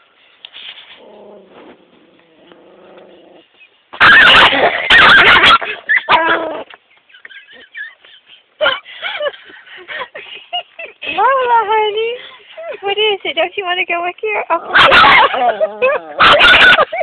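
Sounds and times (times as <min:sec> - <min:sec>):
small dog growling: 0:00.9 - 0:03.6, 0:14.5 - 0:16.4
dog barking harshly: 0:04.0 - 0:06.3, 0:14.7 - 0:17.0
dog yipping: 0:04.0 - 0:06.4, 0:14.7 - 0:17.0.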